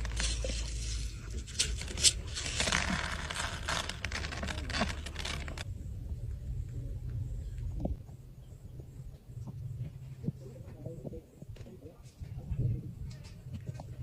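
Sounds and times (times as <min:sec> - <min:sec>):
scraping and rustling handling: 0:00.0 - 0:05.6
low hum: 0:00.0 - 0:14.0.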